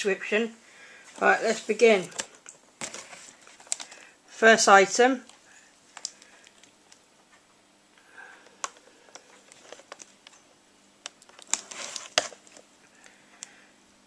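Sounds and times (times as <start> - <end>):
plastic crinkling: 1.2 - 4.1, 8.6 - 10.4, 11.0 - 12.7.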